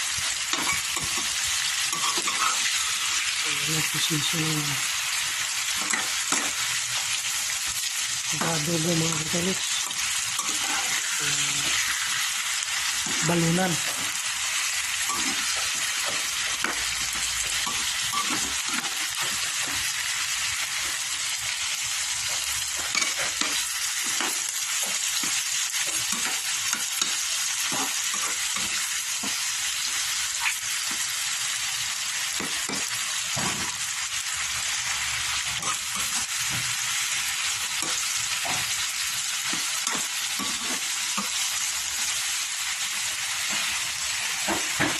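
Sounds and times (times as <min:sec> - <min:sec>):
food sizzling in hot oil: 0:00.0 - 0:44.9
spatula scraping pan: 0:09.6 - 0:12.2.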